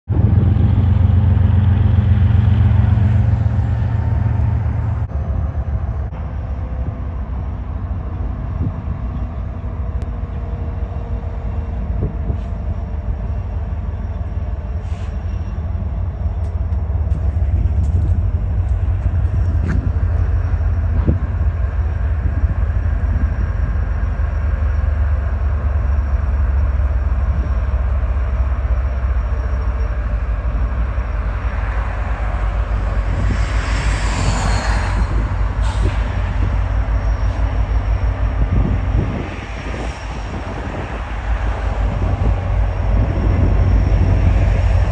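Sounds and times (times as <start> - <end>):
diesel locomotive engine rumble: 0.0 - 44.9
train running noise: 0.1 - 44.9
air hiss with falling squeal: 33.7 - 37.9.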